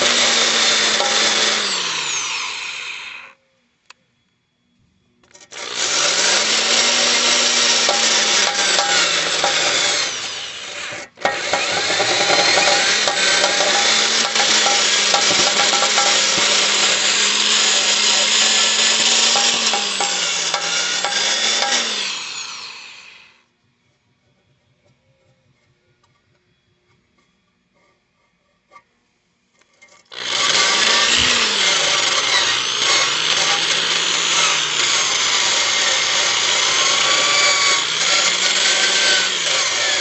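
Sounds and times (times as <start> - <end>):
power wire brush scrubbing steel: 0.0 - 3.2, 5.4 - 23.2, 30.1 - 40.0.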